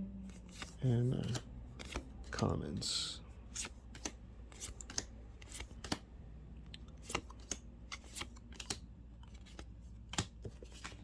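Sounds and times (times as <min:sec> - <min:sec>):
cards snapping: 0:03.6 - 0:06.1, 0:06.7 - 0:11.0.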